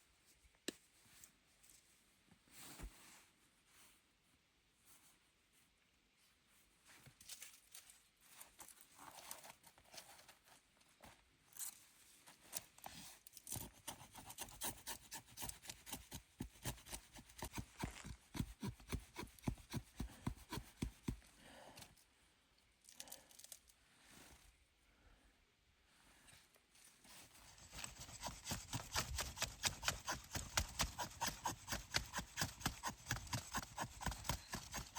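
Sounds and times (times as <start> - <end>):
scraping and rubbing on wood: 27.5 - 34.9.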